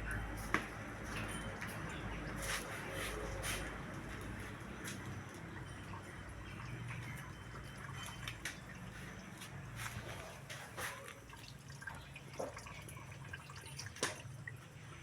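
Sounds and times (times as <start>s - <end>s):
liquid dripping and splashing: 3.9s - 15.0s.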